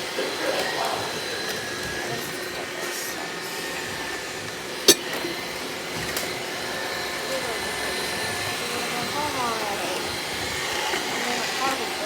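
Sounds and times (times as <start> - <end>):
robot vacuum cleaner whine: 0.0 - 12.0.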